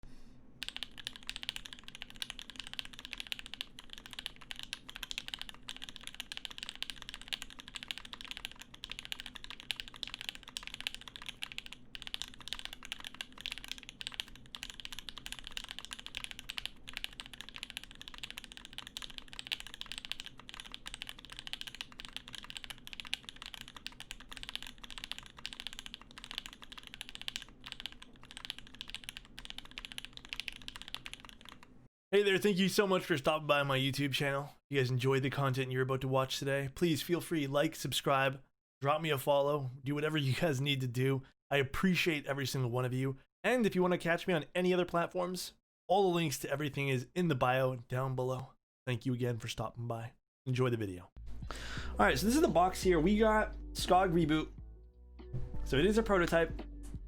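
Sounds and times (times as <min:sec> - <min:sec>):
mechanical keyboard typing: 0:00.6 - 0:31.7.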